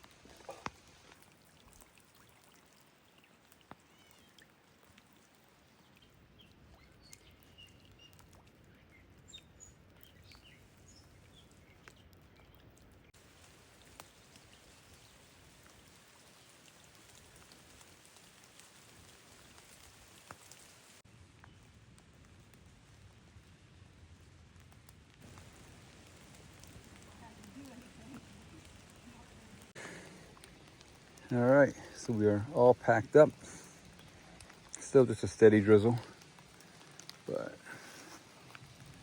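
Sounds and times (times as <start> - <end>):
light rain falling: 0.0 - 39.0
drops ticking: 25.3 - 39.0.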